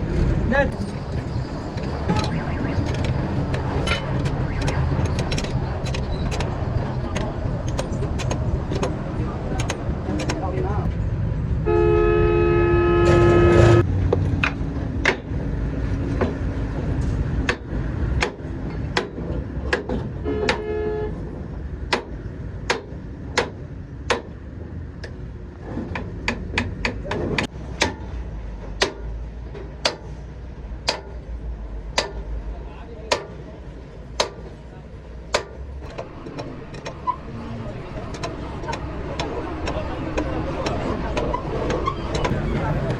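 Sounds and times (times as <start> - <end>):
traffic rumble: 0.0 - 42.9
vehicle horn: 11.6 - 13.9, 20.2 - 21.2.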